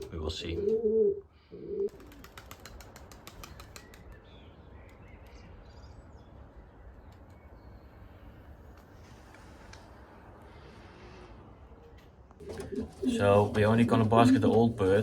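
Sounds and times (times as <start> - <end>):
pigeon wings flapping: 1.9 - 4.2.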